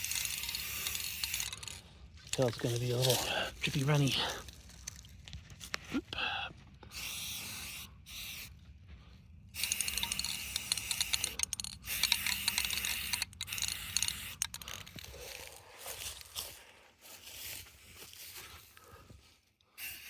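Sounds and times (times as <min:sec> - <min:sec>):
aerosol can spraying: 0:06.9 - 0:08.5, 0:09.6 - 0:14.6.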